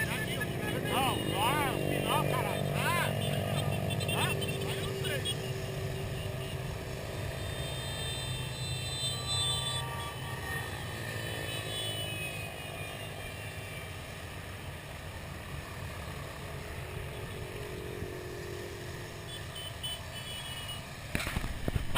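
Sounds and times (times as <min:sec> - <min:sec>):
motorcycle engines rumbling: 0:00.0 - 0:21.9.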